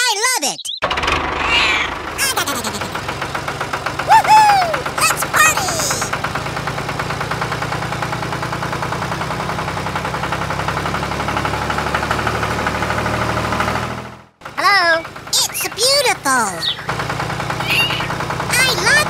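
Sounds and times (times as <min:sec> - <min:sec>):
engine knocking steadily: 0:00.8 - 0:19.0
short squeaky calls: 0:01.4 - 0:02.0, 0:16.6 - 0:18.2.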